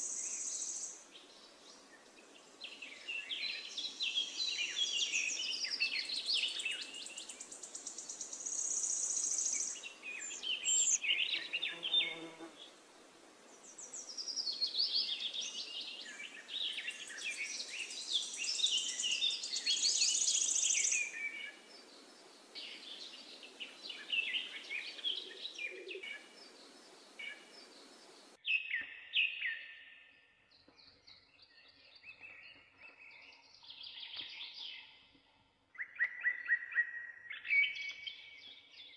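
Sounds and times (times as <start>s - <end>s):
birds chirping and trilling: 0.0s - 12.7s, 13.5s - 38.9s
faint steady hiss: 0.0s - 28.4s.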